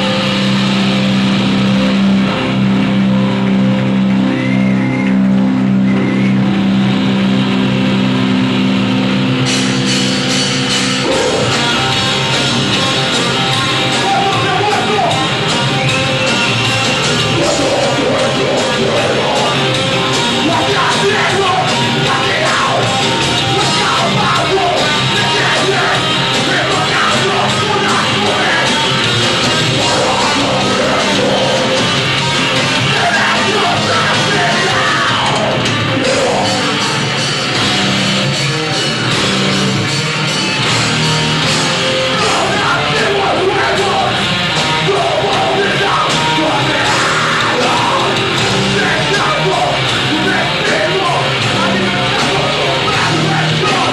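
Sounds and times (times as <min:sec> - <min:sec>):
distorted electric guitars: 0:00.0 - 0:53.9
drums: 0:00.0 - 0:53.9
shouted vocal: 0:11.0 - 0:12.0, 0:17.0 - 0:37.0, 0:41.8 - 0:53.9.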